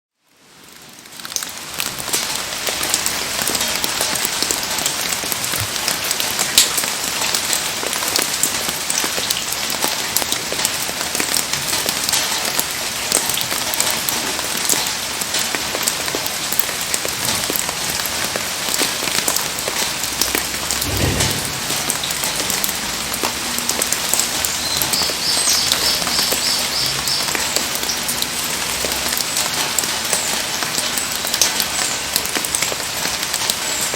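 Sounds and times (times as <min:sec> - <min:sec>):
heavy rain pouring: 0:00.7 - 0:33.9
low thump: 0:20.8 - 0:22.5.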